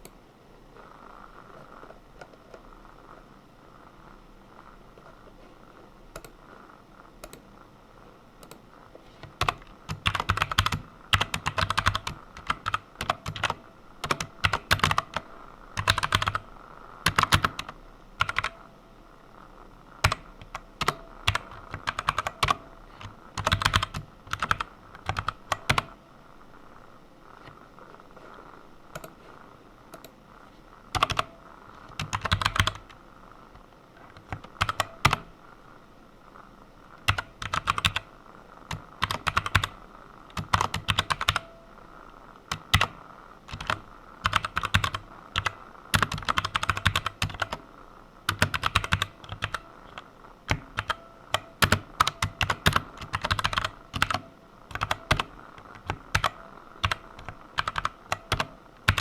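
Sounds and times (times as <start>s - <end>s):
computer keyboard typing: 6.1s - 6.4s, 7.2s - 7.5s, 9.2s - 18.7s, 20.0s - 26.0s, 28.9s - 29.2s, 29.9s - 30.2s, 30.9s - 33.0s, 34.0s - 35.3s, 37.0s - 38.1s, 38.7s - 41.6s, 42.5s - 47.6s, 48.3s - 59.0s.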